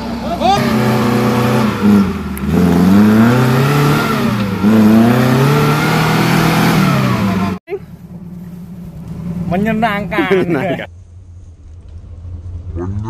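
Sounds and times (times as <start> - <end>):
vehicle engine revving: 0.0 - 13.0.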